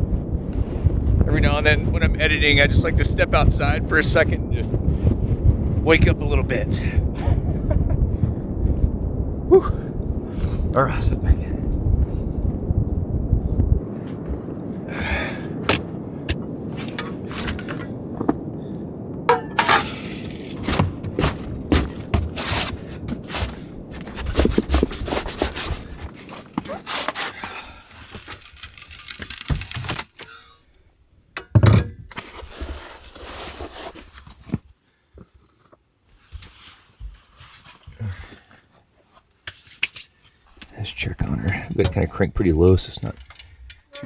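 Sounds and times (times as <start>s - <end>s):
wind rumbling on microphone: 0.0s - 29.9s, 40.6s - 44.0s.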